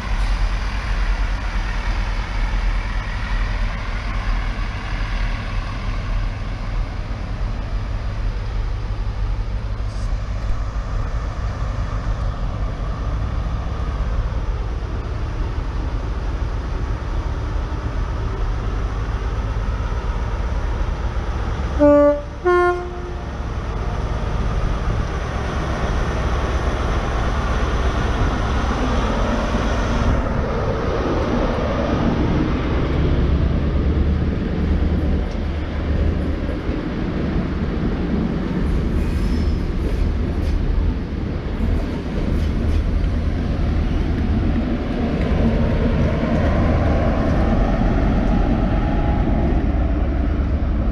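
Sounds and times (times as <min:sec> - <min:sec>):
diesel train engine running: 0:00.0 - 0:50.9
two-note train horn toot: 0:21.8 - 0:23.3.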